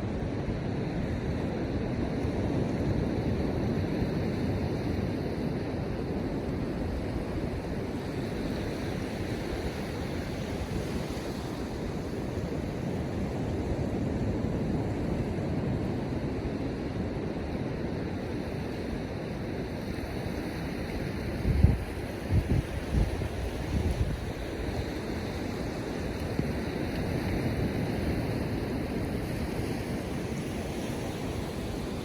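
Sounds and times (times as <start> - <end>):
ocean surf washing onto beach: 0.0 - 32.0
wind: 0.0 - 32.0.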